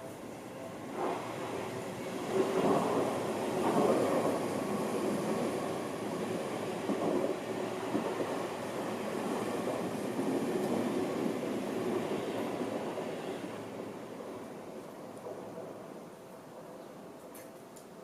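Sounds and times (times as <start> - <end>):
train wheels rumbling on rails: 0.9 - 17.2.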